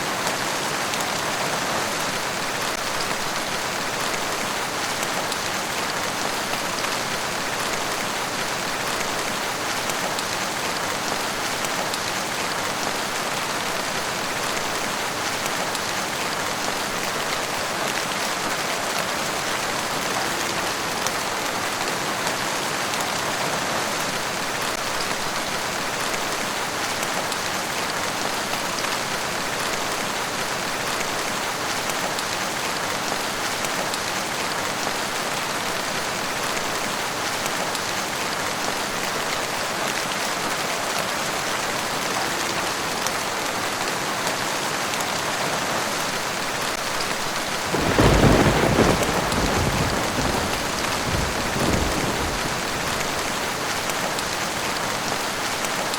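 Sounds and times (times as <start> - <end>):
steady rain falling: 0.0 - 55.9
thunder rumble: 47.6 - 54.4.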